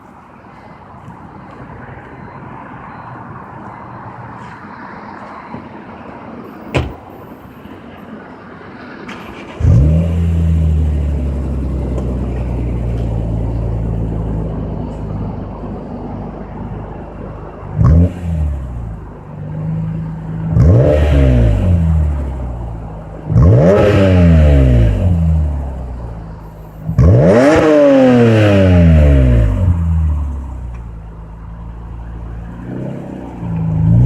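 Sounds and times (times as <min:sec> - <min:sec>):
car engine idling and revving: 0:09.0 - 0:34.0.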